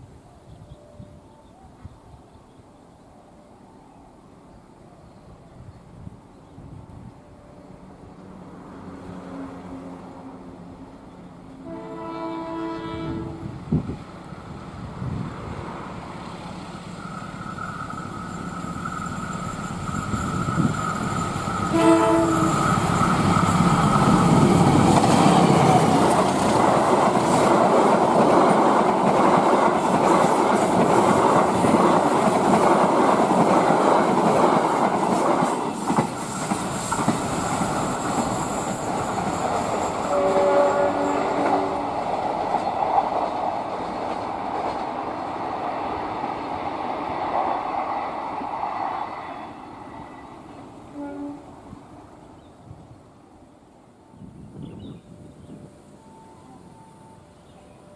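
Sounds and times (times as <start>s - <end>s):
locomotive horn blast: 11.6s - 13.6s, 21.6s - 23.0s, 40.0s - 42.1s, 50.8s - 51.7s
train wheels clattering over rail joints: 17.4s - 40.1s.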